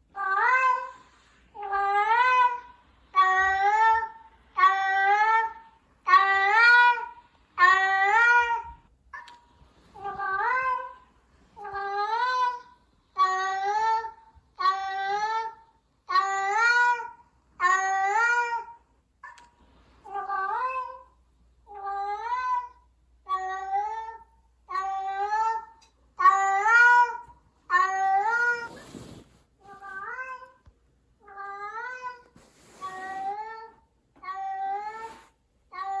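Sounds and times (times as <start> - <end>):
rustling noise: 27.2 - 30.8, 32.1 - 33.9, 34.7 - 35.5.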